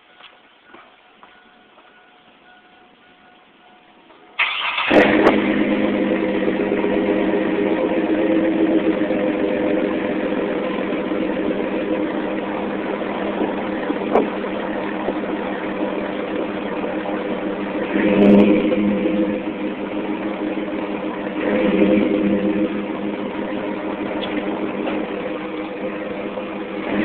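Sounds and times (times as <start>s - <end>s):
engine idling through exhaust: 0.0s - 27.0s
engine cranking: 4.4s - 5.5s.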